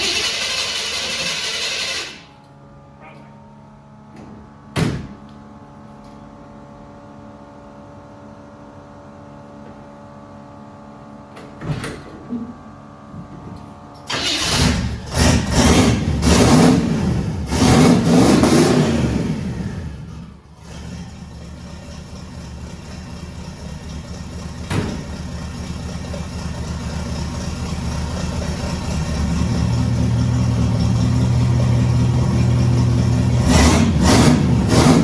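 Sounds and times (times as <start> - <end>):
car engine idling and revving: 0.0 - 2.3, 14.1 - 35.0.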